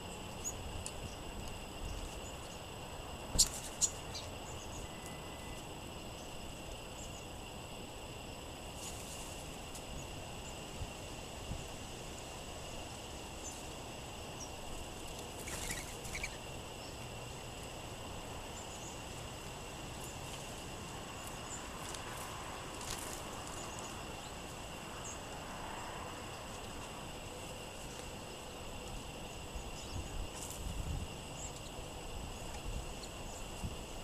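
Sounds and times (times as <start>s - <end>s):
songbirds chipping: 0.0s - 34.0s
wind noise: 29.6s - 31.4s.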